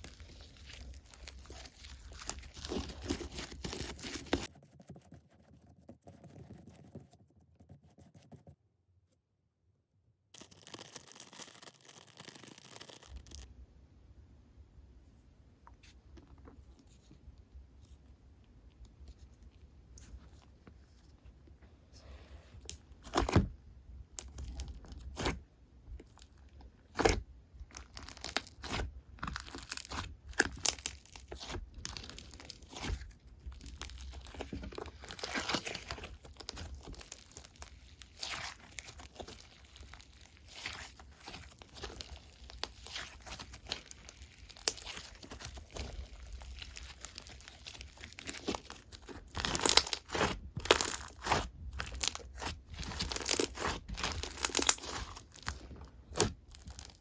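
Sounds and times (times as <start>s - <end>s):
slime squished by hand crackling: 0.0s - 4.5s, 26.9s - 57.0s.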